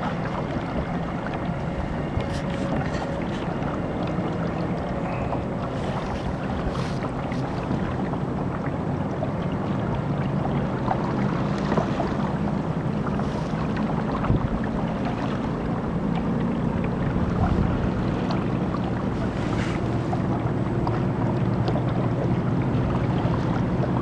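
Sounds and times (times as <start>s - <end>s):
water rushing along hull: 0.0s - 24.0s
wind on microphone: 10.7s - 15.8s, 16.9s - 24.0s.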